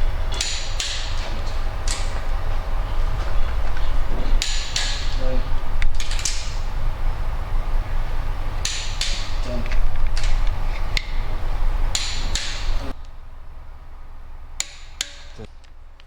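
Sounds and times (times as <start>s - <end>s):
torque wrench clicking: 0.3s - 2.3s, 4.4s - 5.2s, 8.6s - 11.2s, 11.9s - 13.1s.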